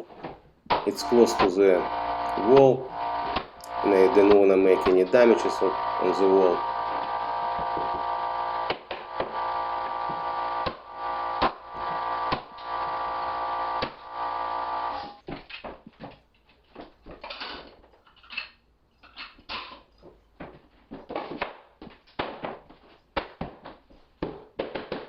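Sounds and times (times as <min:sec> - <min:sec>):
air compressor humming: 0:00.8 - 0:15.2.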